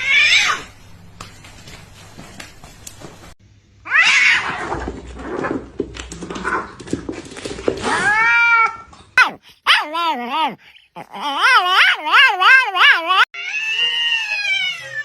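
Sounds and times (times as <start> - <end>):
cat meowing: 0.0 - 0.7, 7.8 - 15.0.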